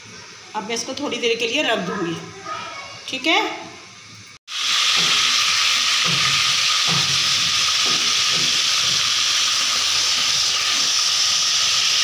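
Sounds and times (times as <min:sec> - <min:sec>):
chicken sizzling in oil: 0:03.8 - 0:12.0.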